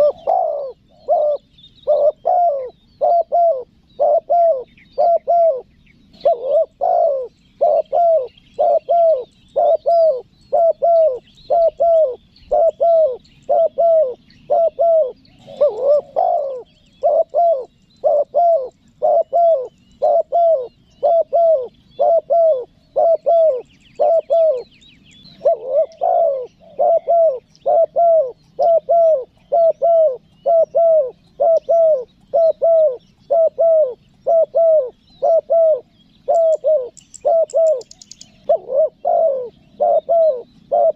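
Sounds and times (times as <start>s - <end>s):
dove cooing: 0.0s - 40.9s
small birds chirping faintly: 0.0s - 40.9s.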